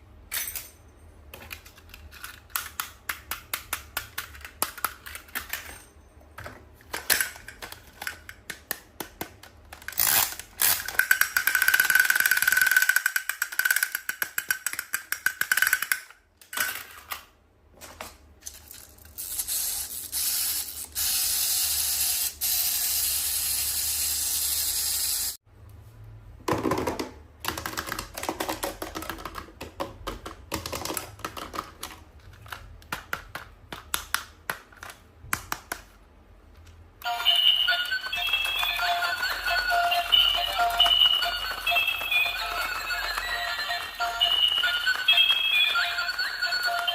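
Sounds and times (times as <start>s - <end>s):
plastic parts clicking: 1.3s - 5.8s, 6.8s - 18.9s.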